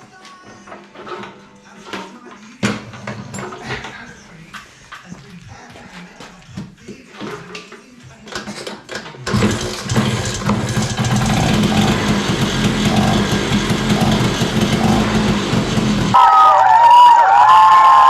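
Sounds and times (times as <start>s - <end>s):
scooter engine starting and running: 9.2s - 16.2s.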